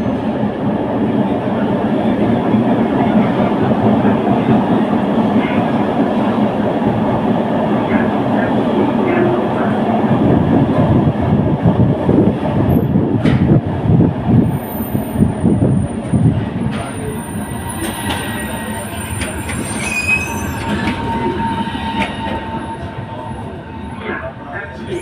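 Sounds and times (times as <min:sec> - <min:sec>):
tram wheels rumbling: 0:00.0 - 0:25.0
high wheel squeals: 0:17.0 - 0:24.0.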